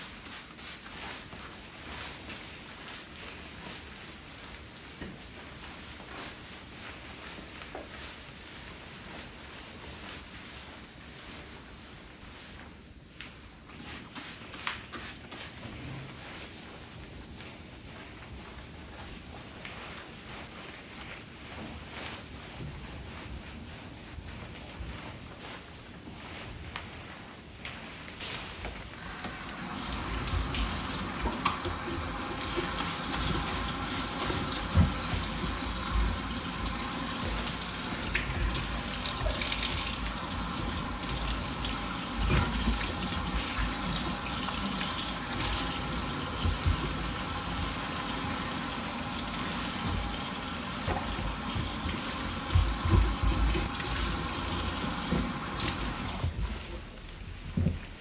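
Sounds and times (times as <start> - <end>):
tap water running into sink: 29.0 - 56.4.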